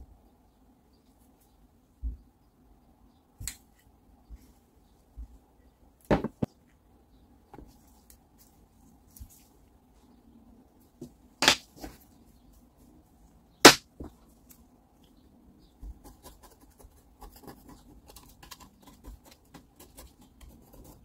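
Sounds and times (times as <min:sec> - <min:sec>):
tools knocking on workbench: 0:06.1 - 0:06.5.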